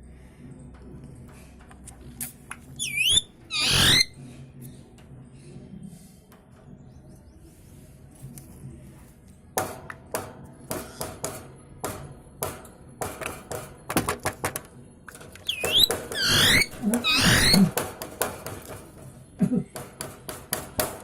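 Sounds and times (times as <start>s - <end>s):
parrot chirping: 2.8s - 4.1s, 15.4s - 17.7s.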